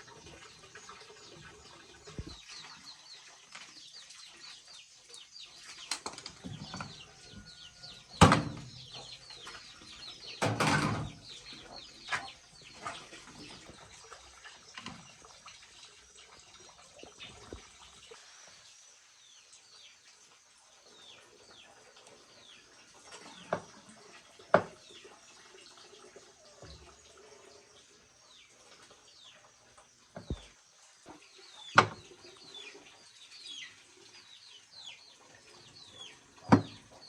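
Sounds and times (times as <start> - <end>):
birds chirping: 0.0 - 20.0, 30.2 - 37.0.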